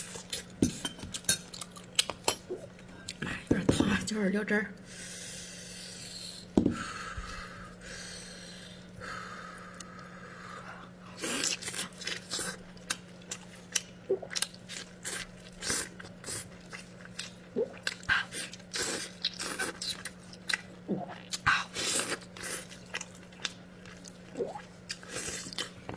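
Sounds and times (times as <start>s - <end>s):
wet chewing and smacking: 0.0s - 3.2s, 11.4s - 25.9s
faint steady hum: 0.0s - 25.9s.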